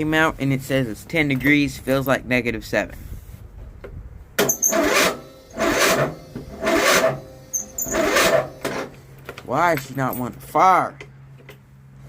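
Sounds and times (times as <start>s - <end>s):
starter motor cranking engine: 4.4s - 9.0s.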